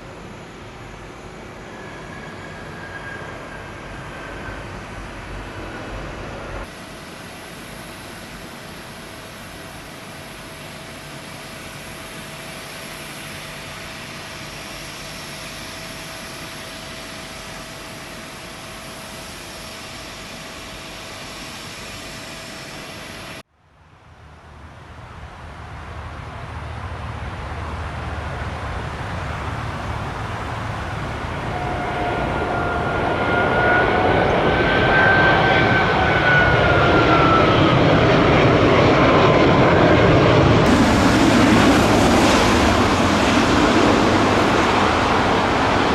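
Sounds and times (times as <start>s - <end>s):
jet engine whine approaching: 0.0s - 45.9s
steady engine hum: 23.5s - 45.9s.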